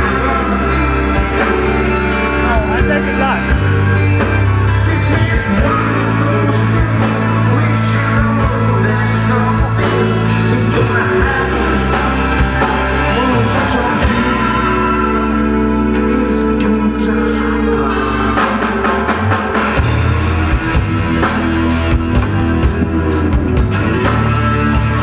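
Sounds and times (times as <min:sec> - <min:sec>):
person singing: 0:00.0 - 0:19.8
live rock band playing: 0:00.0 - 0:25.0.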